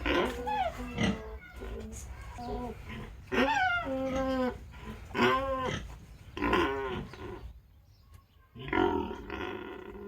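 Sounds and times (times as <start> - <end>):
pig squealing: 0.0 - 7.4.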